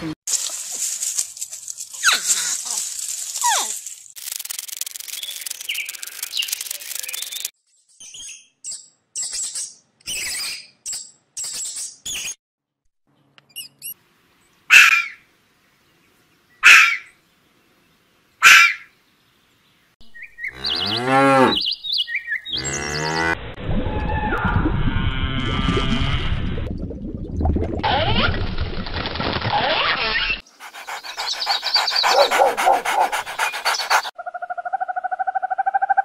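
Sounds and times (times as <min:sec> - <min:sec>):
fox calling sharply: 0:16.6 - 0:17.1, 0:18.4 - 0:18.9.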